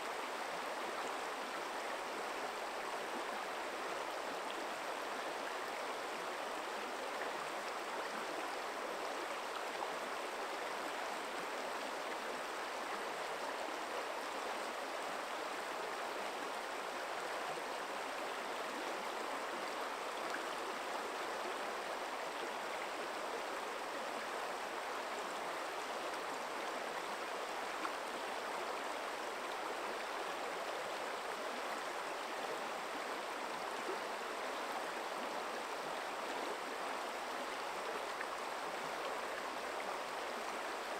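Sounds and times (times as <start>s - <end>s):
forest stream flowing: 0.0s - 40.9s.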